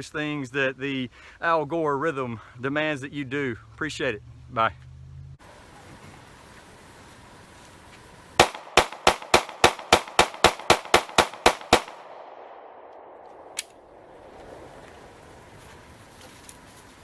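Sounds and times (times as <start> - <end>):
sharp gunshot-like cracks: 8.4 - 13.8.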